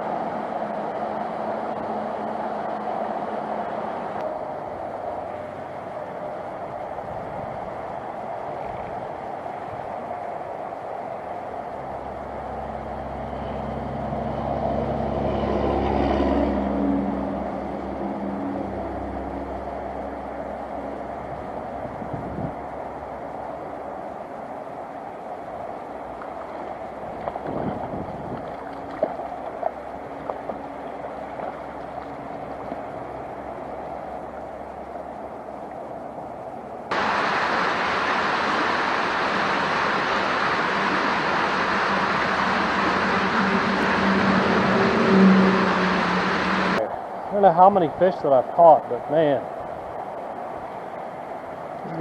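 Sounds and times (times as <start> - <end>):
stream water rushing: 0.0 - 52.0
vehicle passing: 11.8 - 23.3, 36.9 - 48.4
short splashes or knocks: 26.4 - 30.6.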